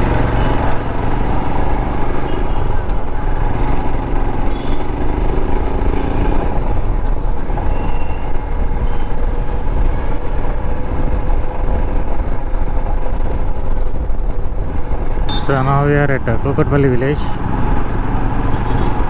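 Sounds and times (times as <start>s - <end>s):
road traffic: 0.0s - 19.0s.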